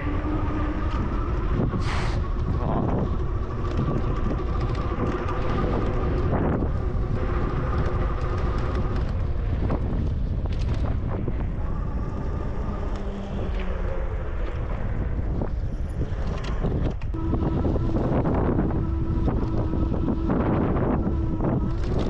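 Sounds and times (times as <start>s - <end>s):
wind buffeting microphone: 0.0s - 22.0s
thin whine: 16.0s - 22.0s.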